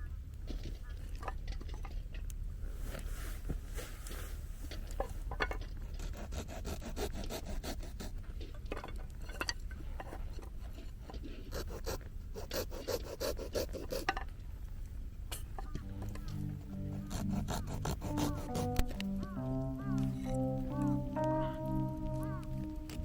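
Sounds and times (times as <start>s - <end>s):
hand saw rasping on wood: 5.8s - 8.2s, 11.4s - 14.2s, 15.8s - 18.8s.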